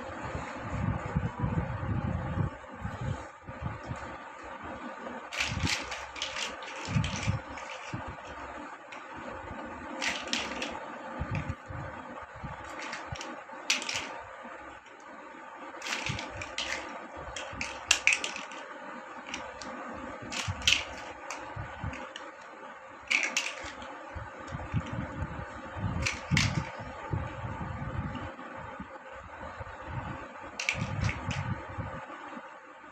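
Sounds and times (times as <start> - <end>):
faint hum: 0.0 - 32.9
plastic building blocks clicking: 5.3 - 9.1, 10.0 - 11.6, 12.6 - 14.2, 15.8 - 19.7, 20.3 - 22.5, 23.1 - 23.9, 26.0 - 26.8, 30.6 - 31.4.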